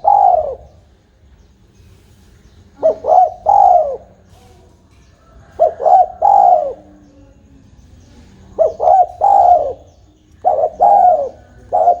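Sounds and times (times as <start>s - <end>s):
dove cooing: 0.0s - 0.9s, 2.7s - 4.5s, 5.3s - 7.1s, 8.4s - 12.0s.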